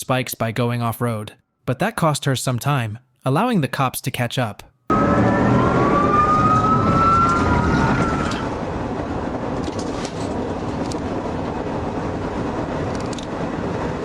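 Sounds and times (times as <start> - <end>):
police siren wailing: 4.9 - 8.9.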